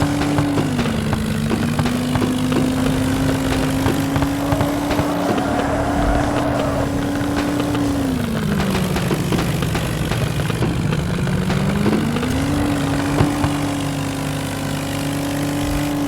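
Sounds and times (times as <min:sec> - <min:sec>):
engine running hard under load: 0:00.0 - 0:16.0.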